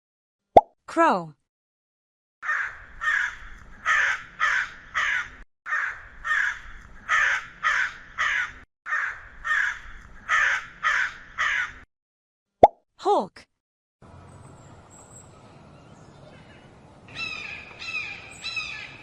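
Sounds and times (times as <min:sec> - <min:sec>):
crow cawing: 0:02.4 - 0:11.8, 0:17.2 - 0:19.0.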